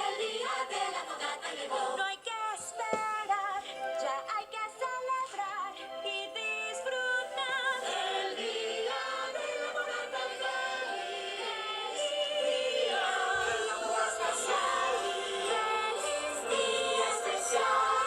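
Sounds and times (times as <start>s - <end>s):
choir singing long held notes: 0.0s - 2.2s, 6.5s - 18.0s
musical accompaniment: 2.6s - 18.0s.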